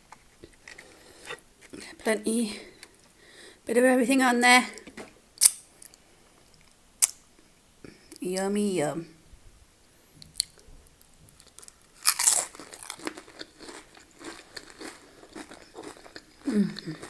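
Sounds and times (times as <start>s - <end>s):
crunchy chewing: 11.4s - 17.0s
biting into crunchy chip: 11.5s - 17.0s.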